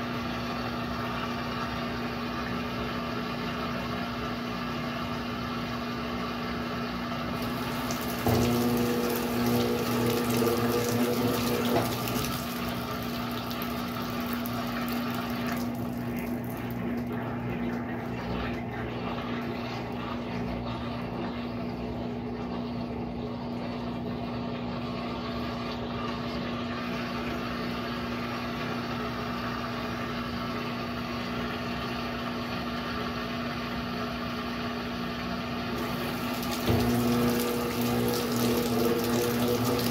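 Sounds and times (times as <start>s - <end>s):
pump hum: 0.0s - 39.9s
washing machine humming: 0.0s - 39.9s
water flowing: 7.4s - 22.9s, 35.8s - 39.9s.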